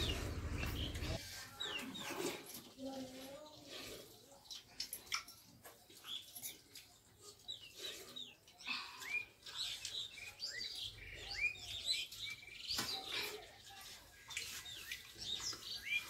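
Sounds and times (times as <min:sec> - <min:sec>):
small birds chirping: 0:00.0 - 0:16.0
clicks of eating from steel plates: 0:04.0 - 0:10.2.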